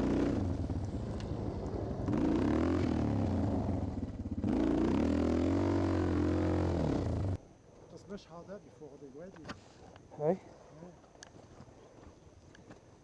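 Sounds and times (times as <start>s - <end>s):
dirt bike engine revving: 0.0s - 7.4s.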